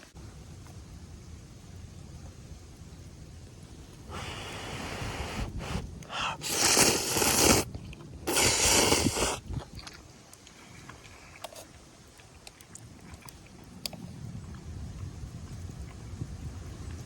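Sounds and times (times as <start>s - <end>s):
noodles slurped: 4.6s - 14.0s.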